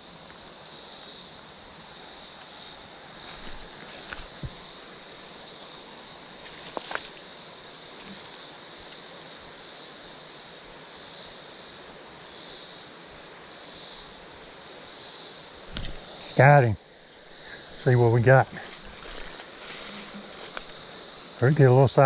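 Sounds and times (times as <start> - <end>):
insect chorus: 0.0 - 22.0
flowing creek water: 15.5 - 22.0.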